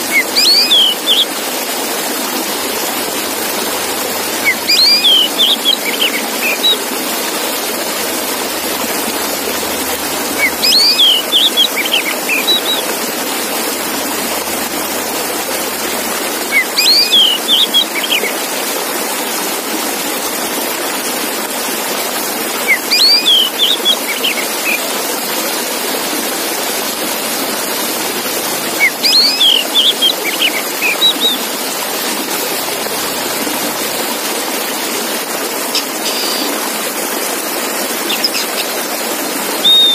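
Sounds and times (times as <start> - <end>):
bird whistled song: 0.1 - 1.3, 4.4 - 6.8, 10.3 - 12.9, 16.5 - 18.3, 22.6 - 24.8, 28.7 - 31.4, 38.1 - 38.6, 39.6 - 39.9.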